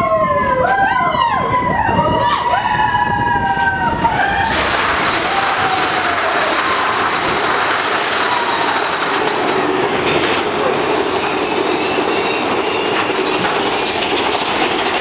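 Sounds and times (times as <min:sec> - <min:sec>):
roller coaster rumbling on track: 0:00.0 - 0:15.0
wheel squeal: 0:02.7 - 0:15.0.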